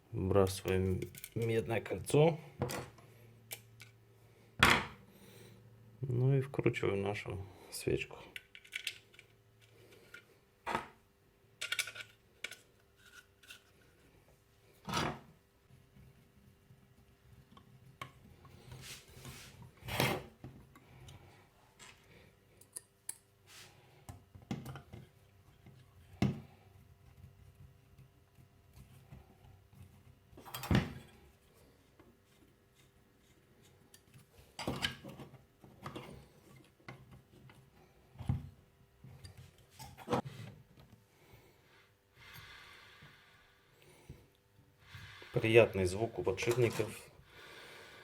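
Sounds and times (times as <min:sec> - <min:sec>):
metal tools clicking and knocking: 0:00.7 - 0:01.5, 0:11.6 - 0:13.6.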